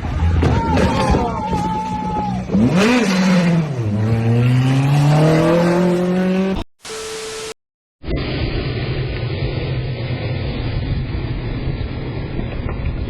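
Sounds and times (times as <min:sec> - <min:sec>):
vehicle engine revving: 0:02.4 - 0:06.7.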